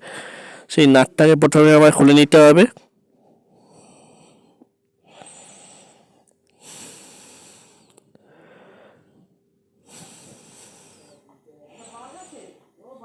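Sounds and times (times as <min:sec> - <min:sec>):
person breathing faintly: 0:00.0 - 0:00.7, 0:03.1 - 0:12.8.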